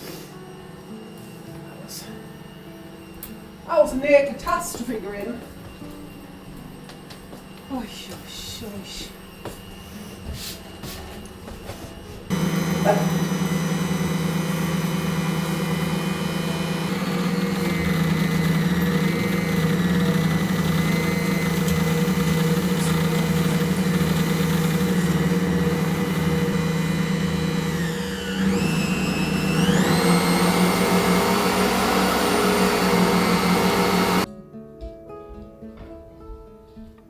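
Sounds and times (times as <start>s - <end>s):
appliance motor humming: 11.4s - 34.3s.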